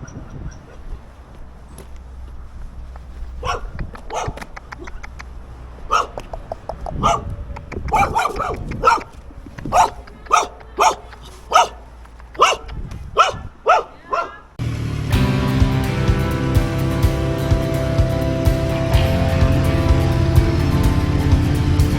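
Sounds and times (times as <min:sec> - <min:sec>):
dog barking: 0:03.4 - 0:05.0, 0:05.8 - 0:14.5.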